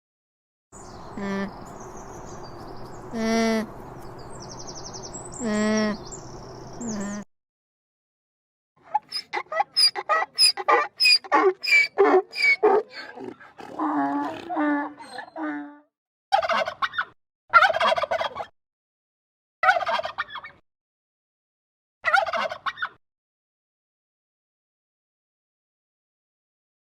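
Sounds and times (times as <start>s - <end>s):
chicken calling: 8.9s - 13.0s.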